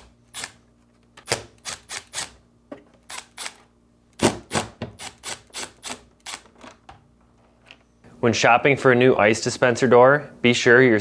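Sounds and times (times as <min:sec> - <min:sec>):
screwdriver clicking on screws: 0:00.0 - 0:00.6, 0:01.2 - 0:02.4, 0:03.0 - 0:03.6, 0:04.2 - 0:06.5.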